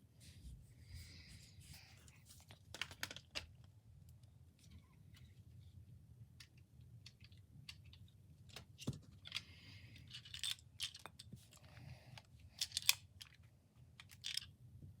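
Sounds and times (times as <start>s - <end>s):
plastic clicks and rattles: 2.5s - 3.7s, 10.0s - 11.6s, 12.6s - 14.5s.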